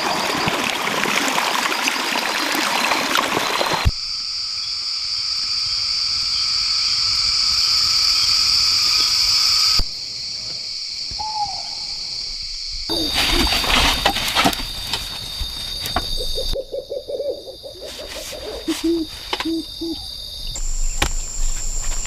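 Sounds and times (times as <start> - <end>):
running water: 0.0 - 3.9
forest ambience: 0.0 - 22.0
high-pitched insect drone: 3.9 - 22.0.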